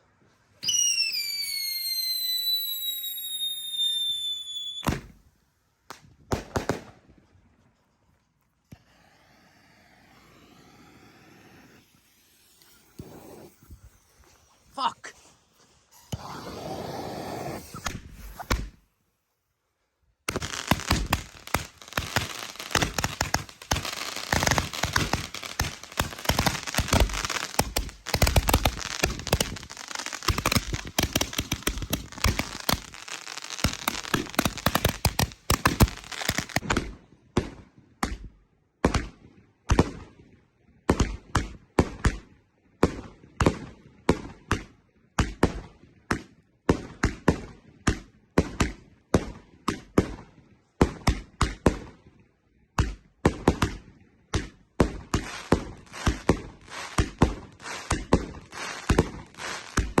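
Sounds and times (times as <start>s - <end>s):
fireworks bangs: 0.6s - 5.2s, 5.9s - 7.2s, 8.7s - 14.9s, 15.9s - 18.8s, 20.3s - 36.9s, 54.4s - 60.0s
fireworks crackling: 0.6s - 5.2s, 5.9s - 7.1s, 8.6s - 18.8s, 20.3s - 36.6s, 54.8s - 60.0s.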